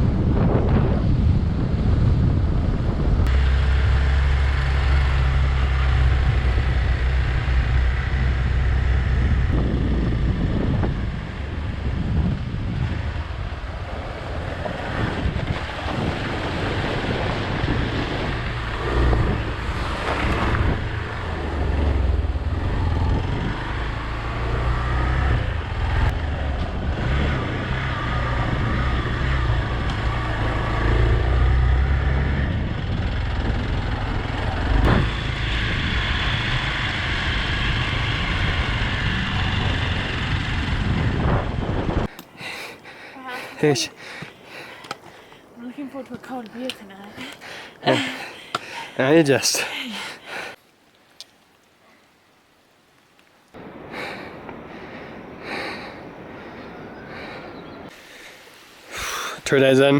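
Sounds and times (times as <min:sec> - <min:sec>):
wind rushing over microphone: 0:00.0 - 0:45.6, 0:53.6 - 0:58.0
motorcycle engine running: 0:02.2 - 0:42.1.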